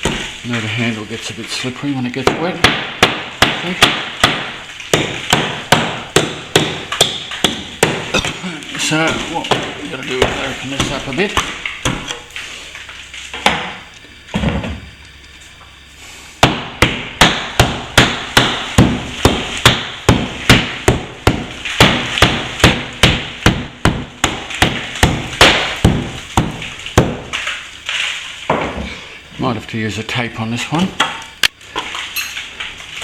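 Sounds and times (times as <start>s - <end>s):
hammer striking plaster: 0.0s - 0.3s, 2.2s - 12.2s, 16.4s - 27.5s.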